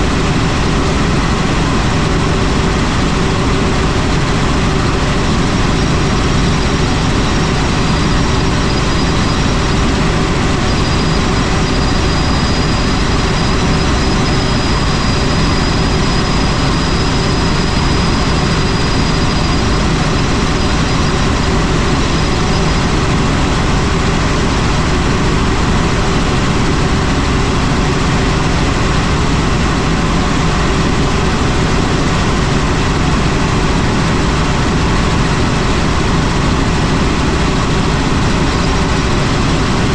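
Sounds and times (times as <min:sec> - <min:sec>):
faint high whine: 0:00.0 - 0:27.3
helicopter rotor and engine: 0:00.0 - 0:39.9.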